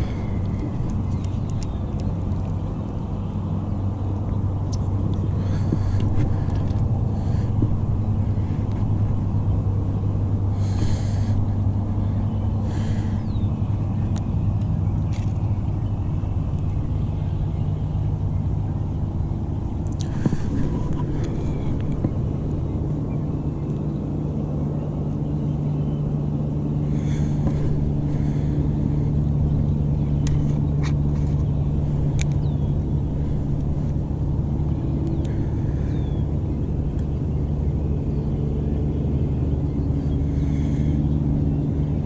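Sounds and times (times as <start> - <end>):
low engine rumble: 0.0 - 42.0
faint clicks: 0.4 - 2.6.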